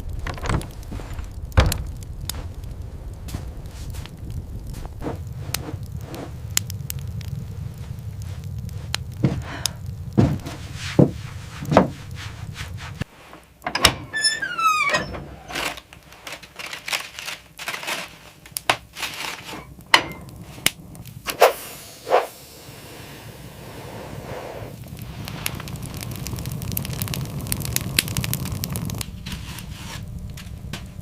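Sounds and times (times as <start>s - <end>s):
sharp knocks and thunks: 0.2s - 2.6s, 10.1s - 12.0s
falling creaking squeal: 13.7s - 15.8s.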